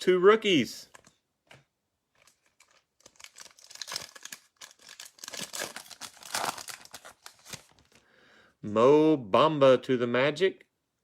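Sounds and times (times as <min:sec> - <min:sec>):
foil wrapper tearing and crinkling: 0:02.2 - 0:08.0.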